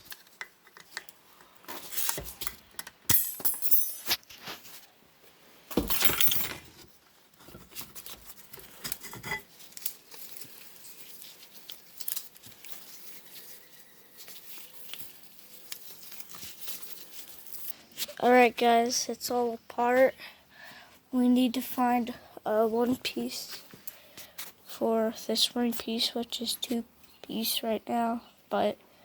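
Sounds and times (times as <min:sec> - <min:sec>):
metal parts clinking and clanking: 0:02.0 - 0:04.2, 0:05.8 - 0:06.8.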